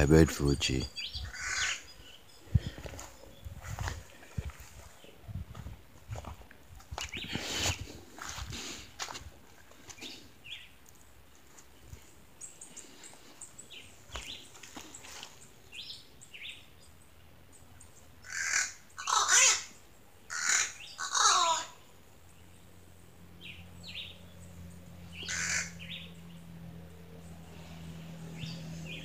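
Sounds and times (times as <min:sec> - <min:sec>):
birds chirping: 0:00.0 - 0:08.0, 0:09.6 - 0:29.0
harsh bird squawks: 0:01.0 - 0:02.0, 0:18.2 - 0:21.8, 0:25.2 - 0:25.9.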